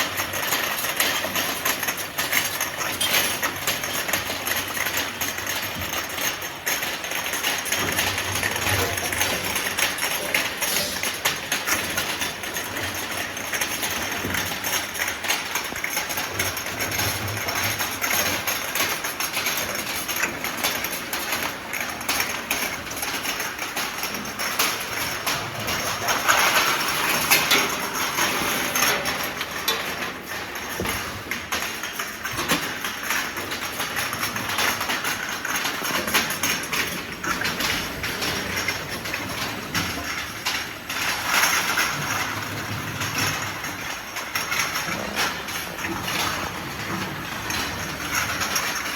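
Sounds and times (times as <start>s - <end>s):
glass bottles clicking and knocking: 0.0s - 21.0s.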